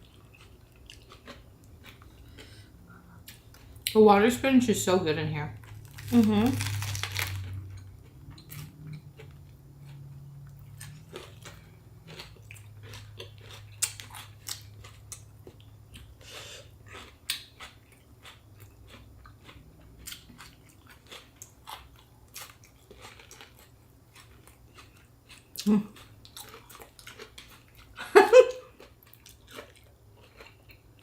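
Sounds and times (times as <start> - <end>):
close-miked chewing: 0.0 - 3.9, 5.6 - 31.0
soft crunches: 5.8 - 7.6.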